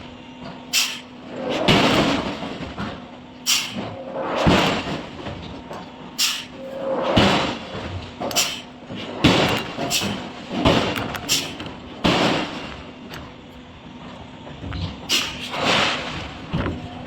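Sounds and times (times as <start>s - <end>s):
heavy forging impacts and clanks: 0.4s - 17.0s.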